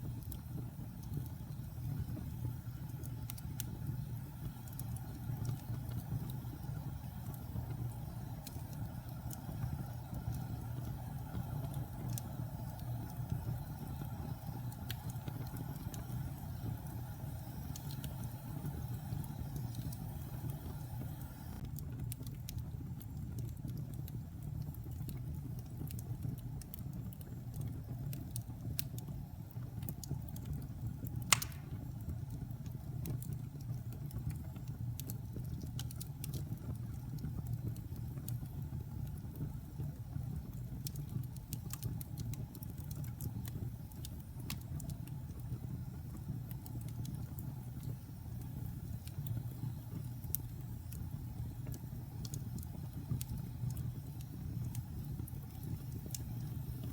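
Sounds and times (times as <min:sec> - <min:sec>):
fire rumbling in fireplace: 0:00.0 - 0:56.9
small fire crackles: 0:00.0 - 0:56.9
sharp loud pop: 0:31.3 - 0:31.8.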